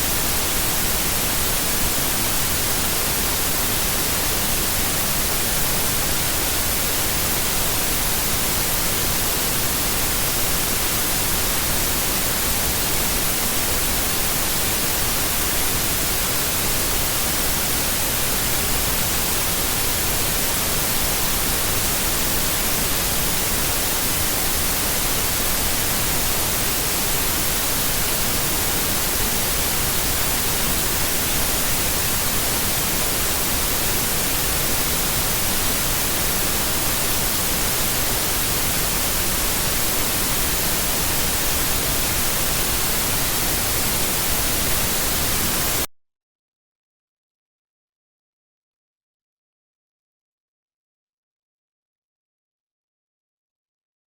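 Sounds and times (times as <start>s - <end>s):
white noise hiss: 0.0s - 45.9s.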